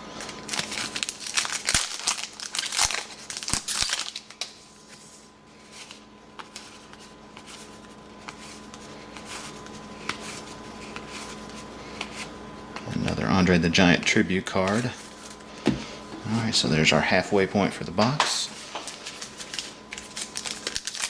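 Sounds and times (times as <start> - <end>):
plastic wrapper crinkling: 0.2 - 5.0, 18.0 - 21.0.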